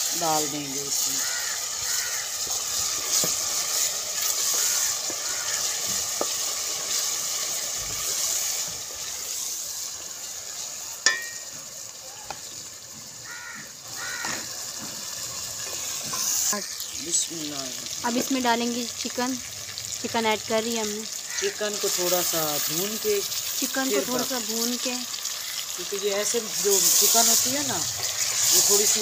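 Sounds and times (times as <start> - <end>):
food sizzling in hot oil: 0.0 - 29.0
wooden spoon stirring in pot: 1.7 - 11.6, 26.4 - 29.0.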